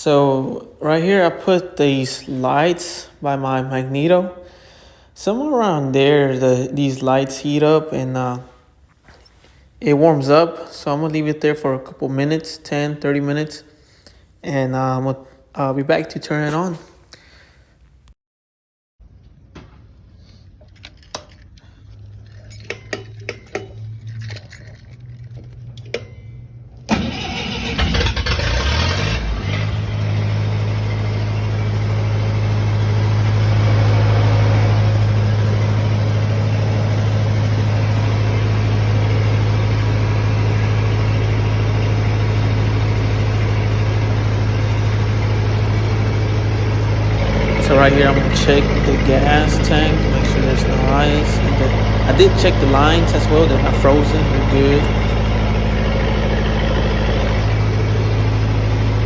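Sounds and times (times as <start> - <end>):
welder gas engine starting and running: 20.1 - 59.0.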